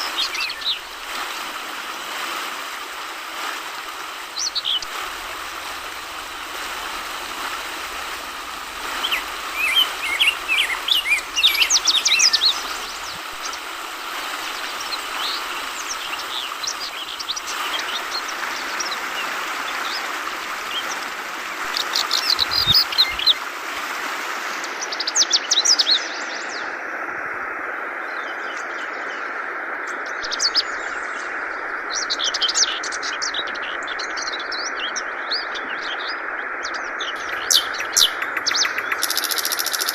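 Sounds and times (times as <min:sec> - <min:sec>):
trickling flowing water: 0:00.0 - 0:39.9
bird quick high chirps: 0:37.2 - 0:39.9.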